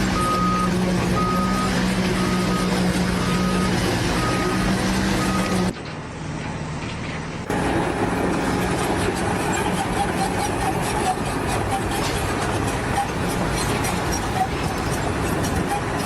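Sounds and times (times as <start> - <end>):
machinery humming: 7.4 - 16.0.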